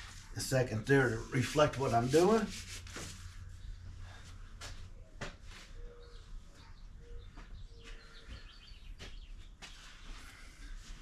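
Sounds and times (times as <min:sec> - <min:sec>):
faint bird calls: 0:05.5 - 0:10.8.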